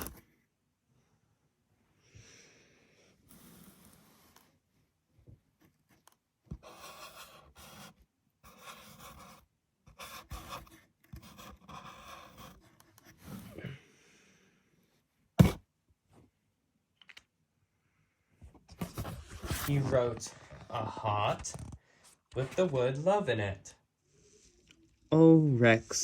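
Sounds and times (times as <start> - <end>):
marker squeaking on board: 6.5 - 7.9, 8.5 - 12.7.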